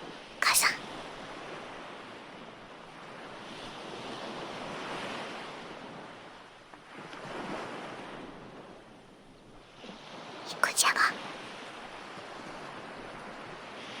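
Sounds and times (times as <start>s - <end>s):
ocean waves on shore: 0.0s - 14.0s.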